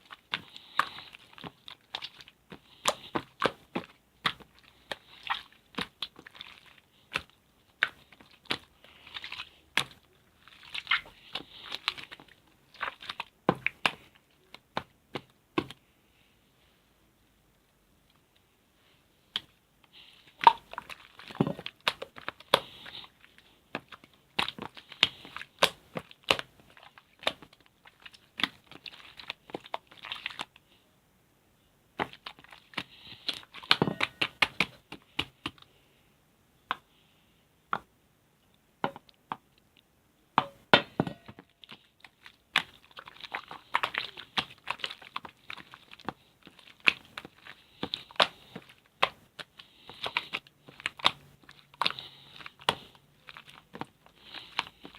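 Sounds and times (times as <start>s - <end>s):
slime crackling: 0.0s - 15.7s, 19.3s - 30.6s, 41.1s - 54.9s.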